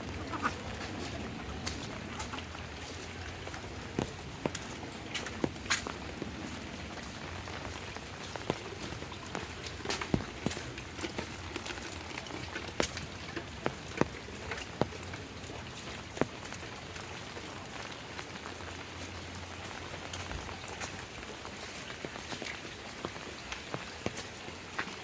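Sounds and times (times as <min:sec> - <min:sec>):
large raindrops tapping: 0:00.0 - 0:25.0
steady rain falling: 0:00.0 - 0:25.0.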